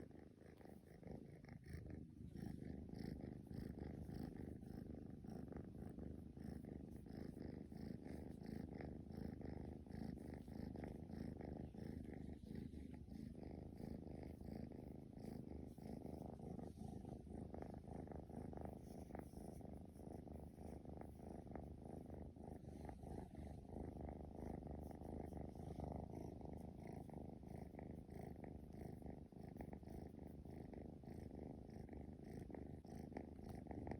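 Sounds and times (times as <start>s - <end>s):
kitten purring: 0.0s - 33.9s.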